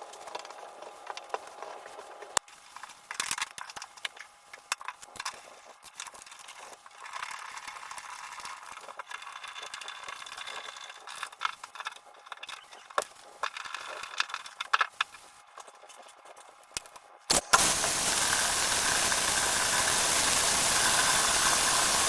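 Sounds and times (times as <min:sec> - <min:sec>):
steady hiss: 0:17.3 - 0:22.0.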